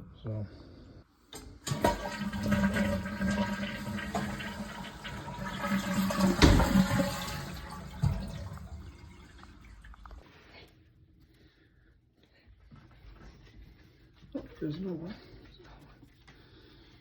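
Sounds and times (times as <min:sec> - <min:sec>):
toilet flushing: 0:01.3 - 0:10.2.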